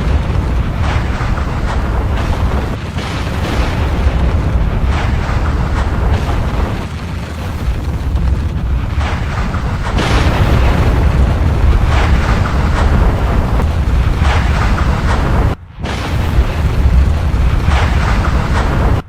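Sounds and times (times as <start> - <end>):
rushing eruption surges: 0.0 - 19.0
volcanic eruption rumble: 0.0 - 19.0.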